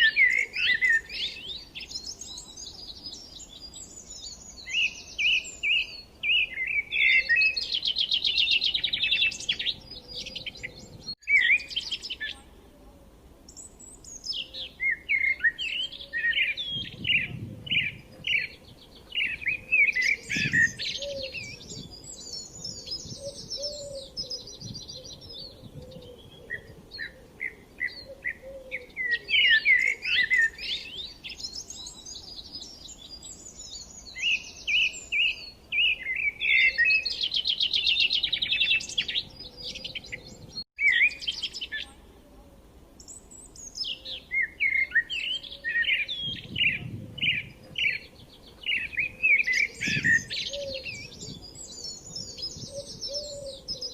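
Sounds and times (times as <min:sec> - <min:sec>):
songbirds chirping and singing: 0:00.0 - 0:53.9.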